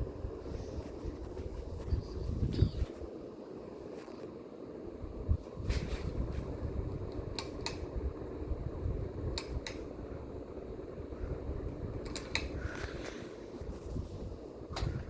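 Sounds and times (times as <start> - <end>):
ceiling fan running: 0.0 - 15.0
sharp clicks: 12.0 - 12.6.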